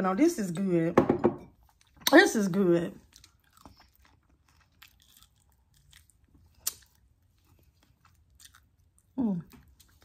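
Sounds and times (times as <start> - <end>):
chewing fried chicken: 2.9 - 10.0.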